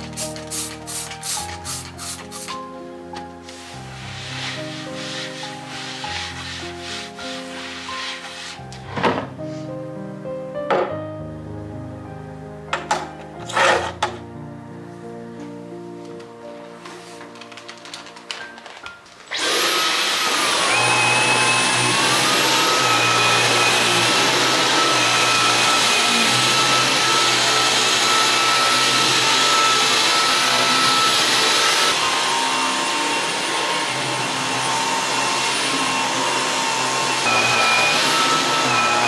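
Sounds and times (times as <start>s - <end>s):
vacuum cleaner motor whine: 19.3s - 39.0s.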